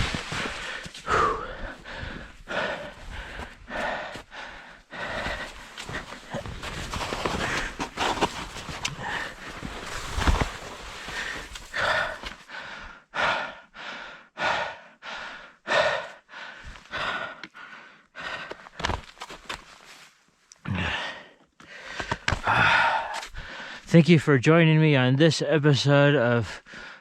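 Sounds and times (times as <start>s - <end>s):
person breathing heavily: 0.0s - 18.8s, 20.7s - 23.9s, 26.6s - 27.0s.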